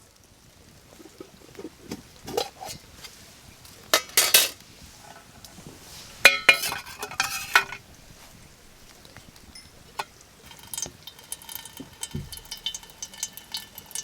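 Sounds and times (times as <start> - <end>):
metal utensils scraping cookware: 1.0 - 10.8.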